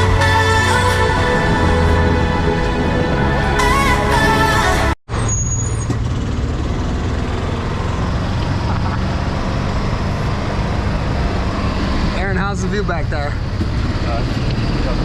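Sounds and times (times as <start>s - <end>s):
music: 0.0s - 5.0s
vehicle engine and road rumble: 0.0s - 15.0s.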